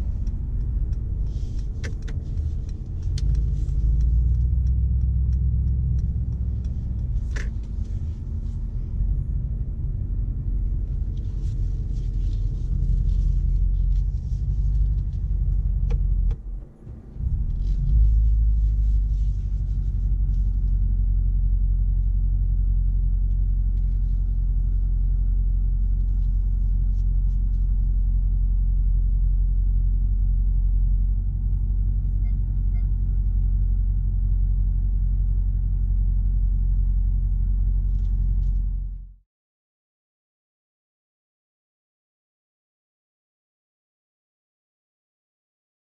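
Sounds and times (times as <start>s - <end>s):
engine rumble: 0.0s - 39.2s
click: 0.1s - 7.7s.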